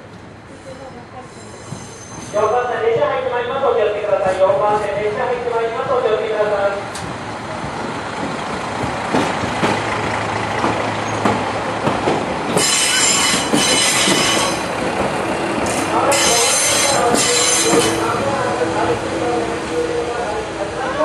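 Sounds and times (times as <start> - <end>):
high-pitched brake squeal: 0.6 - 2.6, 12.6 - 14.7, 15.7 - 18.0.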